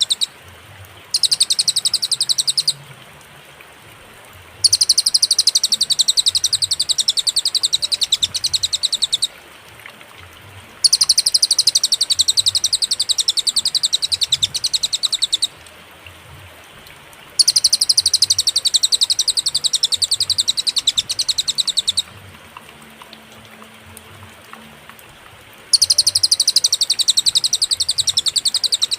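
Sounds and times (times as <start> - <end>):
songbird high-pitched trills: 0.0 - 0.3, 1.1 - 2.8, 4.6 - 9.3, 10.8 - 15.6, 17.4 - 22.2, 25.7 - 28.9.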